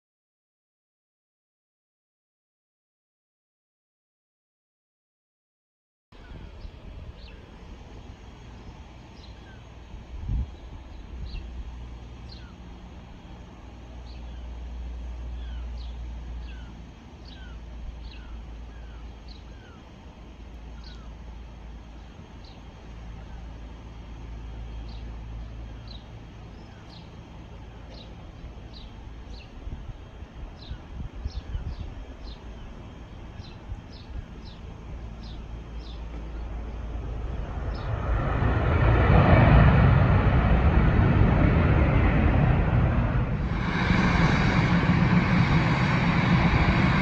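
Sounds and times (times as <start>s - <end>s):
small birds chirping: 6.2s - 12.7s, 14.0s - 14.6s, 15.2s - 38.2s
low outdoor rumble: 6.2s - 47.0s.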